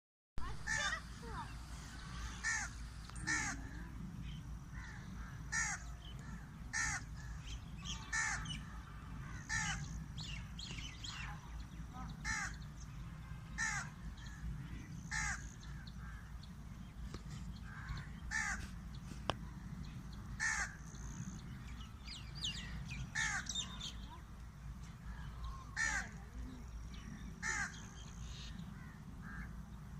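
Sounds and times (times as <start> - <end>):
steady low rumble: 0.4 - 29.9
crow cawing: 0.7 - 1.0, 2.2 - 3.8, 4.7 - 9.9, 12.2 - 12.6, 13.6 - 14.0, 15.1 - 16.3, 17.7 - 18.6, 20.4 - 20.8, 23.2 - 23.6, 25.2 - 26.2, 27.4 - 28.0, 28.8 - 29.5.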